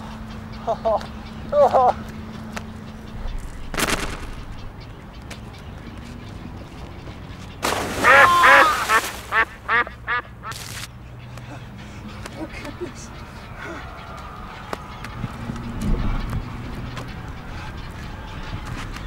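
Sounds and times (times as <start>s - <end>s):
ducks quacking: 0.0s - 19.0s.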